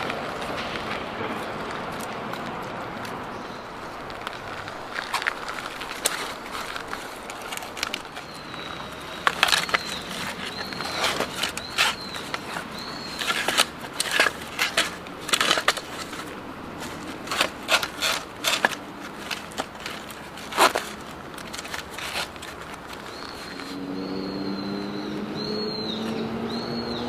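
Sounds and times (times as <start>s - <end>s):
crunching and clicking: 0.0s - 23.8s.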